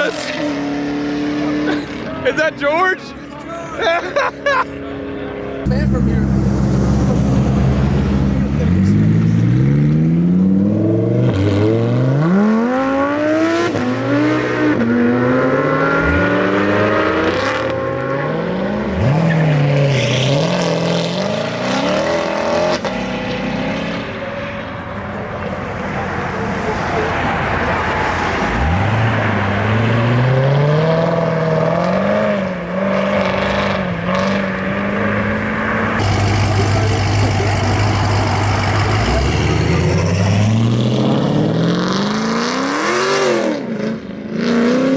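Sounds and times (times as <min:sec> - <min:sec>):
car engines accelerating: 0:00.0 - 0:44.9.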